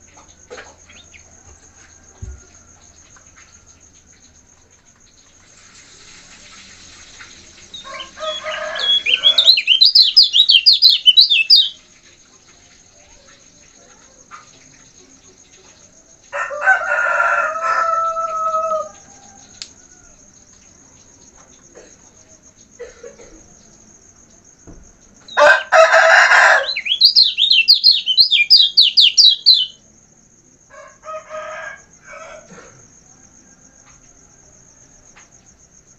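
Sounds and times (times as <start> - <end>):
high insect trill: 0.0 - 35.9
rooster crowing: 1.0 - 3.8, 7.7 - 11.5, 16.3 - 20.4, 25.3 - 29.7, 30.7 - 35.6
bird singing whistled notes: 7.7 - 11.8, 26.6 - 29.8.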